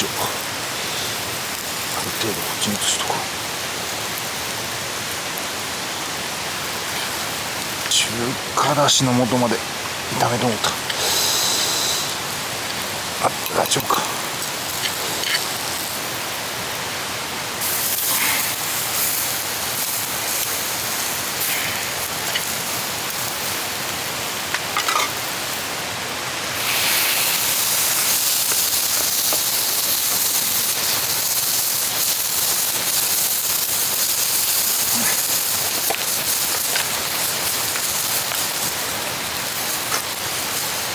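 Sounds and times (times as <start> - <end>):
food sizzling in a frying pan: 0.0 - 40.9.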